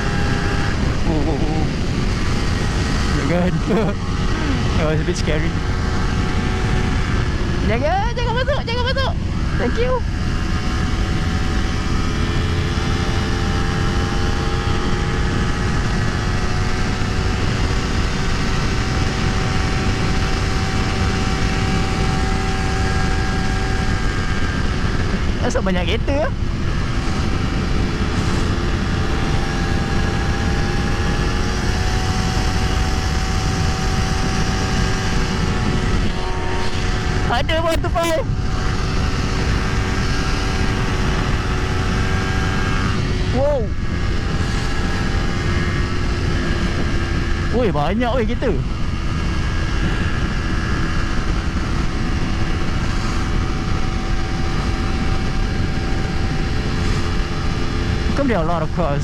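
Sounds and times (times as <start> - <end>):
motorcycle engine droning: 0.0 - 59.0
wind rumble on microphone: 0.0 - 59.0.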